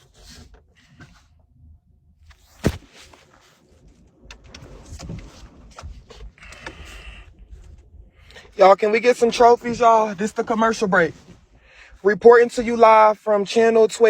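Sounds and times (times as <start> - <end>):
rustling and handling noises: 2.3 - 8.0.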